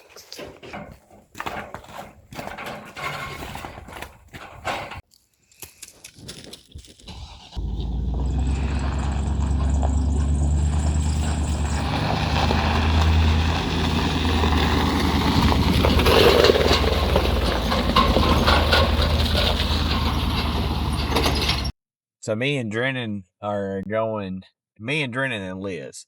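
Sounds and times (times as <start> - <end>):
rattling and clattering: 0.0 - 5.0, 7.2 - 21.7
vehicle engine running: 7.6 - 21.7.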